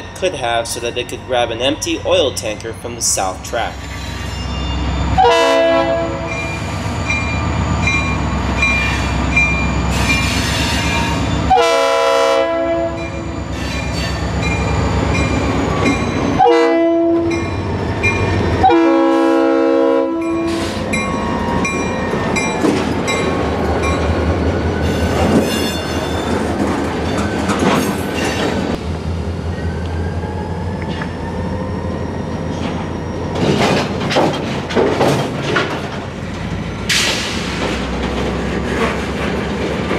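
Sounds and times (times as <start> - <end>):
crossing signal bell ringing: 0.0 - 5.2, 6.2 - 11.6, 12.9 - 16.4, 17.2 - 18.5, 20.2 - 24.2
locomotive horn: 5.2 - 6.4, 10.4 - 13.3, 16.4 - 17.3, 18.6 - 20.8.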